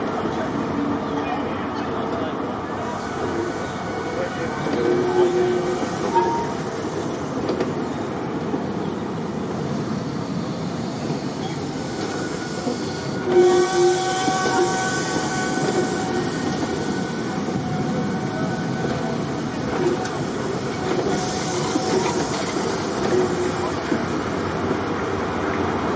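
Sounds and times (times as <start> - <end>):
train wheels rumbling on rails: 0.0 - 25.9
brief ringing squeal: 6.1 - 6.6.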